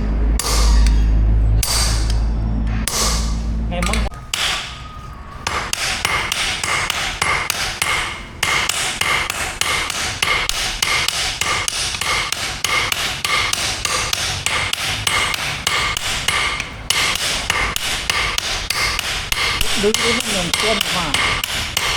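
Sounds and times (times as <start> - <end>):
hammer blows on steel anvil: 0.4 - 2.2, 2.8 - 21.9.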